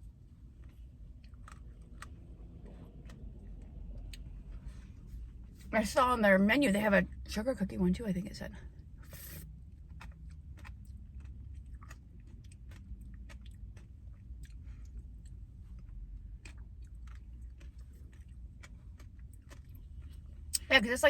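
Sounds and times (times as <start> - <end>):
person chewing: 0.5 - 5.7, 9.0 - 20.7.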